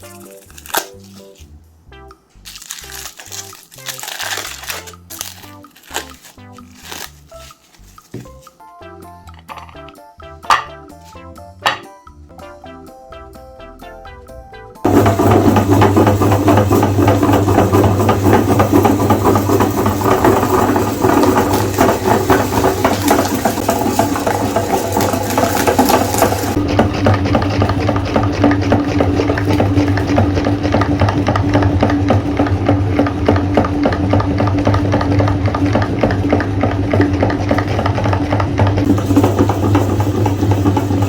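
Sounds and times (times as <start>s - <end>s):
electric meat grinder running: 14.8s - 41.0s.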